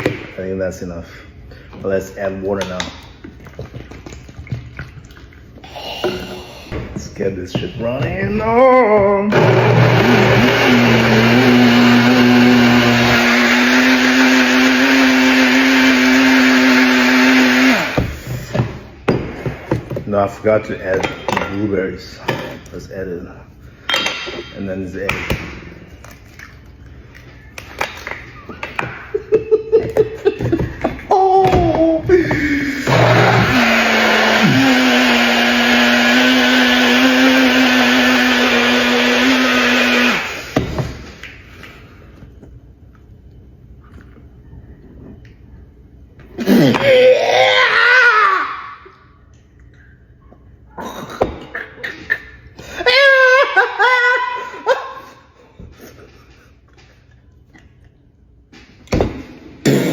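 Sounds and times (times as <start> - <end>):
blender motor whining: 9.3 - 18.3, 32.1 - 40.6.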